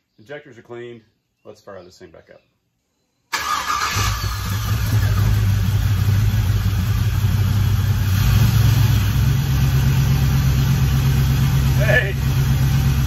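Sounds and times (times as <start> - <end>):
car engine idling: 3.4 - 13.0.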